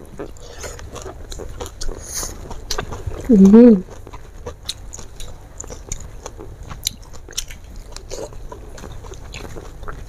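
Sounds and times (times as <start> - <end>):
person chewing food: 0.0 - 10.0.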